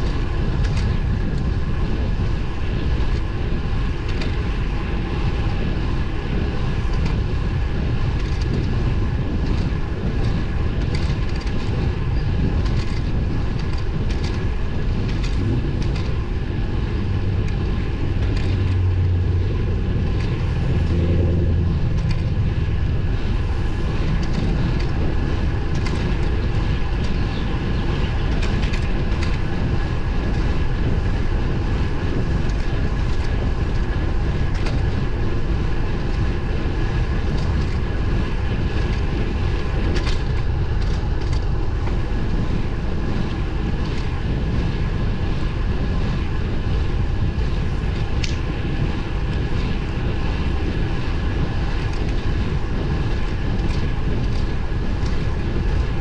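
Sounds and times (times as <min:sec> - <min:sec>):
bike tyres humming on pavement: 0:00.0 - 0:56.0
wind rush on microphone: 0:00.0 - 0:56.0
light ticks: 0:48.2 - 0:48.4.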